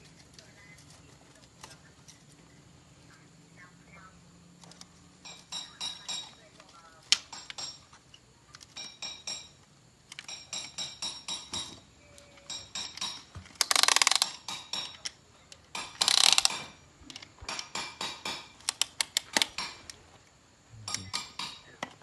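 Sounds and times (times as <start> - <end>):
metal tools clinking on engine parts: 12.4 - 13.3
ratchet wrench clicking: 12.5 - 15.0, 15.8 - 16.8, 18.6 - 19.8.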